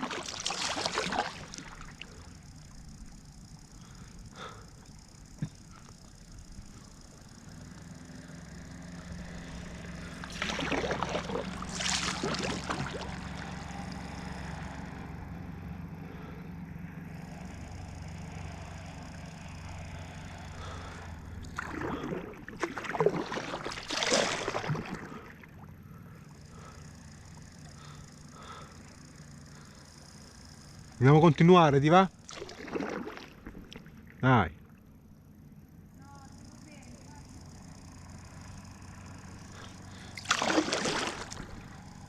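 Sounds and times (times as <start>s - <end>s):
paddle splashing in water: 0.0s - 2.1s, 10.0s - 13.6s, 21.4s - 25.7s, 32.2s - 34.2s, 39.6s - 41.8s
low hum: 0.0s - 42.0s.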